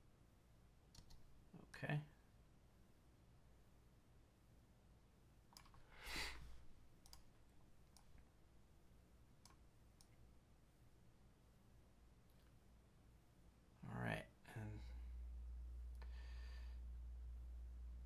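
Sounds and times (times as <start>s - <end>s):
computer mouse clicks: 0.9s - 1.4s, 5.5s - 5.8s, 7.0s - 8.2s, 9.4s - 10.2s.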